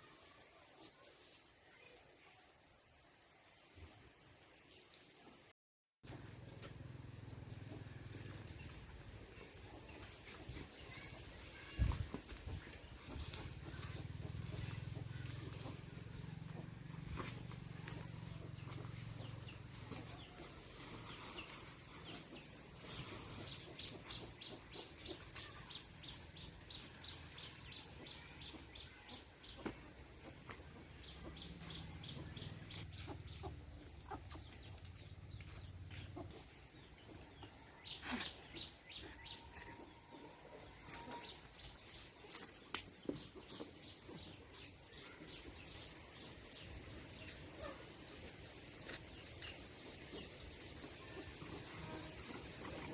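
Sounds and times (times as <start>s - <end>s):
birds high chirps: 30.9s - 40.2s.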